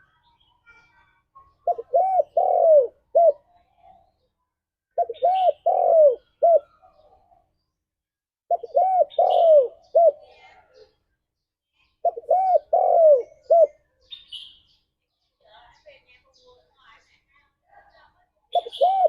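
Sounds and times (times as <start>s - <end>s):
dove cooing: 1.6s - 3.6s, 5.0s - 7.4s, 8.5s - 10.9s, 12.0s - 13.8s, 18.5s - 19.0s.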